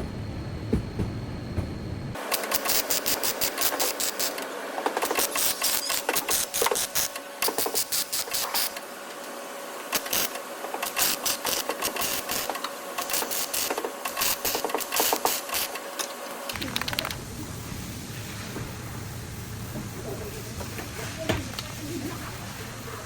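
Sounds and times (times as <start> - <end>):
faint steady hum: 0.0 - 2.2
low rumble: 0.0 - 2.2.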